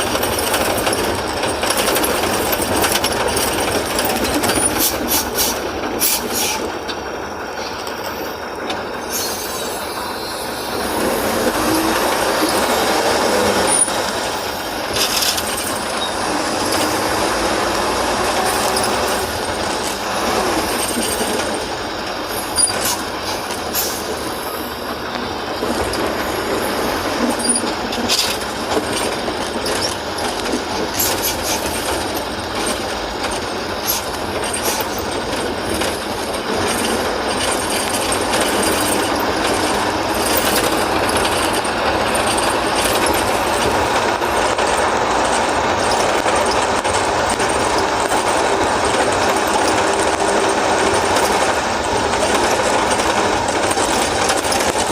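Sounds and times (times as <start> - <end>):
diesel engine under load: 0.0 - 54.9.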